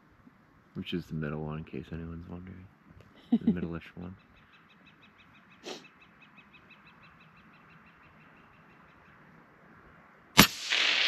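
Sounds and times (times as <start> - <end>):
loud rifle shot: 10.4 - 11.0.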